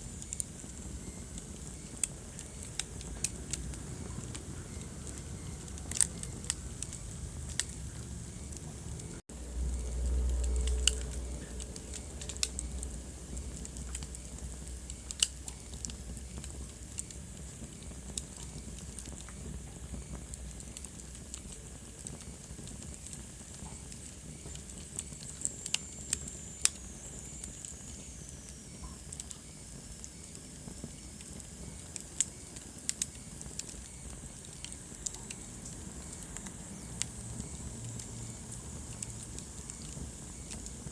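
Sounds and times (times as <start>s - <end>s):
fire hissing: 0.0s - 40.9s
wood fire crackling and popping: 0.0s - 40.9s
low rumble: 3.5s - 15.1s.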